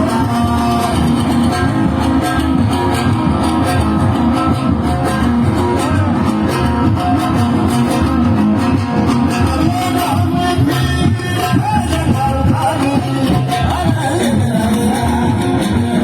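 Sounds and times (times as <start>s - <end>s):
bass line: 0.0s - 16.0s
plucked-string melody: 0.0s - 16.0s
steady beat: 0.0s - 16.0s.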